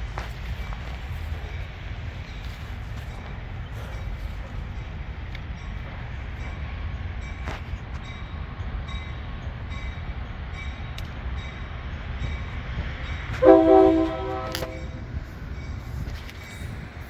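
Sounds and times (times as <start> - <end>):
diesel locomotive rumbling: 0.0 - 17.0
train air horn chord: 13.4 - 15.1.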